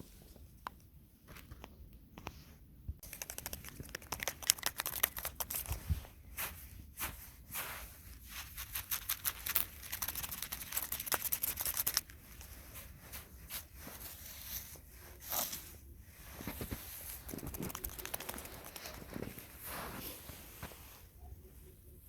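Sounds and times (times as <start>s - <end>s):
scattered clicks: 3.0s - 5.7s
crackling and rustling: 3.0s - 21.2s.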